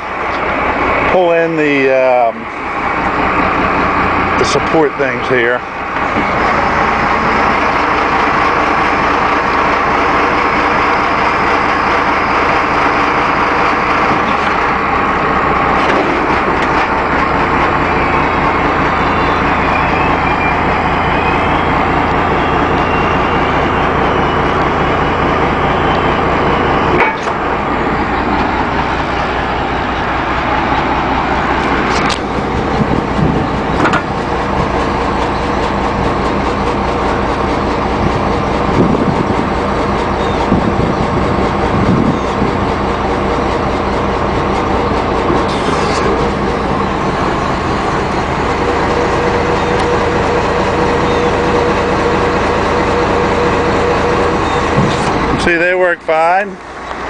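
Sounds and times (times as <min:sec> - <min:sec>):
diesel truck engine running: 0:00.0 - 0:57.0
rising hydraulic whines: 0:00.0 - 0:57.0
sharp metal clanks: 0:26.9 - 0:27.4.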